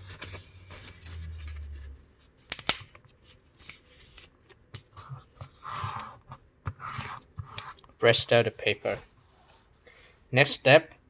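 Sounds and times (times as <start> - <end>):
crisp paper snaps: 2.5 - 3.0.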